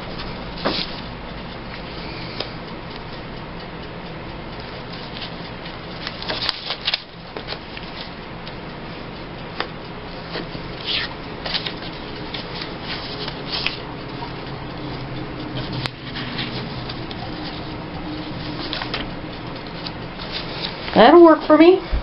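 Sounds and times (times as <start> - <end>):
paper rustling: 6.0 - 8.1, 10.2 - 14.2, 15.6 - 17.7, 18.4 - 21.0.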